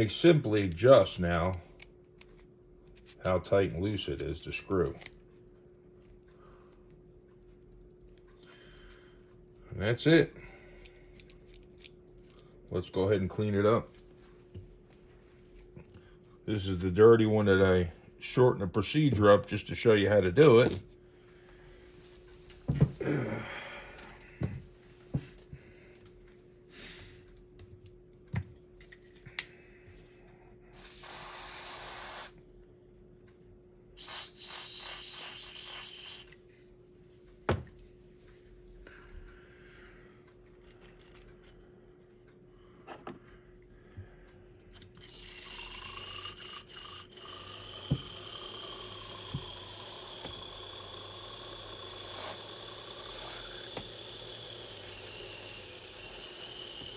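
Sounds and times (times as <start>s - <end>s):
small parts clicking and tapping: 4.9s - 9.6s, 10.6s - 12.5s, 40.5s - 42.0s, 44.5s - 56.9s
aerosol spray hissing: 30.8s - 32.4s, 34.0s - 36.3s.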